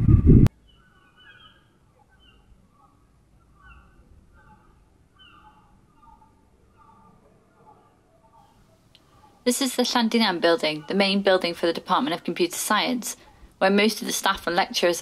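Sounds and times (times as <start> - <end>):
faint birds calling: 0.6 - 11.5.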